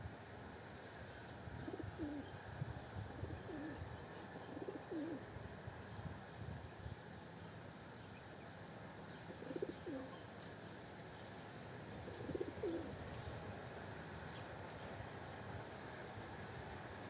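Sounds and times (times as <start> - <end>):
dove cooing: 1.6 - 2.4, 3.0 - 5.3, 9.3 - 10.2, 12.0 - 13.0.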